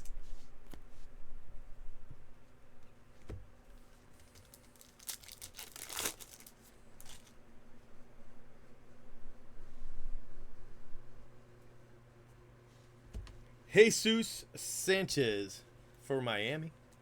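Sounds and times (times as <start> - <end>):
plastic crinkling and rustling: 4.0 - 7.4.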